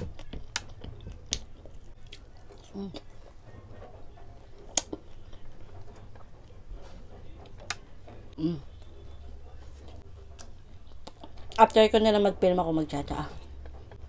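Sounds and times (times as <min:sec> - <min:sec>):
person chewing: 0:00.0 - 0:03.4, 0:04.6 - 0:05.9, 0:10.4 - 0:11.6
person humming: 0:08.4 - 0:08.7.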